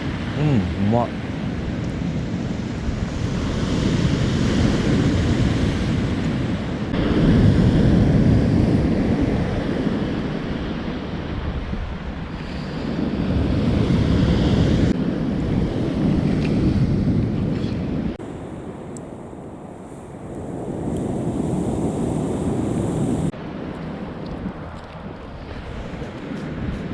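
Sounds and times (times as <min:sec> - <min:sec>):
wind buffeting microphone: 0:01.3 - 0:23.3
waves breaking on beach: 0:18.2 - 0:23.3.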